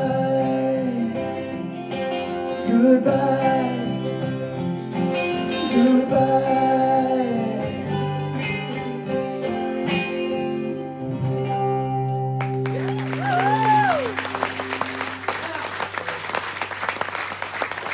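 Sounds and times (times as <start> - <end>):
acoustic guitar: 0.0 - 16.8
lead guitar sliding melody: 7.6 - 15.9.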